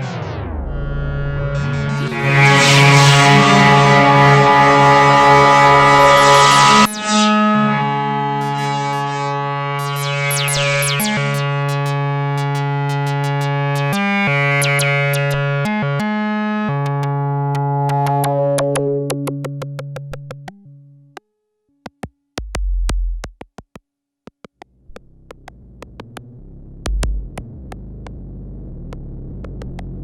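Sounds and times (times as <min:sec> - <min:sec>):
deep bass pulses: 0:00.0 - 0:15.6, 0:22.4 - 0:23.4, 0:24.8 - 0:30.0
buzzy synthesizer tone: 0:00.0 - 0:20.1
low hum: 0:00.4 - 0:15.4
sharp clicks: 0:28.9 - 0:30.0.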